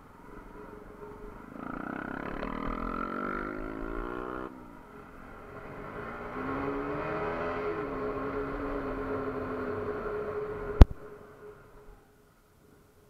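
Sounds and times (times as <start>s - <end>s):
motorcycle engine accelerating: 0.5s - 10.9s.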